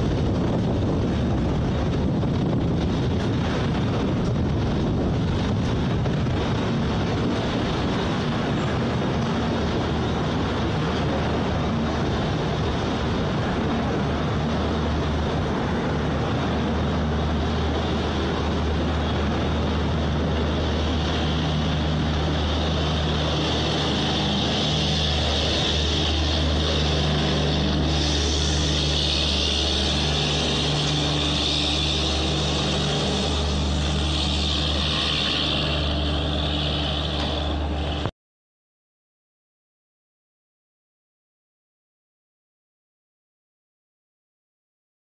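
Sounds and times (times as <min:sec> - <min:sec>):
low hum: 0:00.0 - 0:38.1
train wheels rumbling on rails: 0:00.0 - 0:38.1
hiss: 0:07.3 - 0:38.1.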